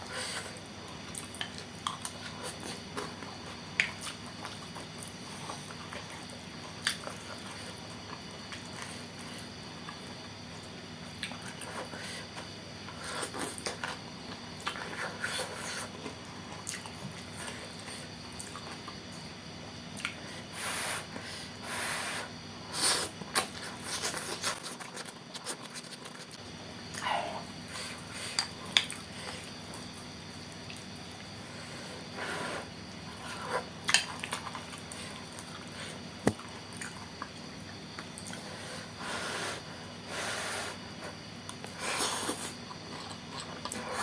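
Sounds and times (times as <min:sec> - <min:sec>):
wet chewing with mouth clicks: 0:33.5 - 0:38.4.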